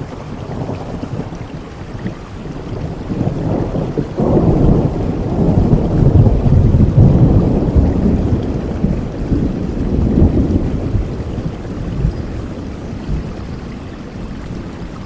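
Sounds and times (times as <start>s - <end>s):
steady rain hiss: 0.0s - 15.0s
thunder rolling: 2.5s - 13.9s.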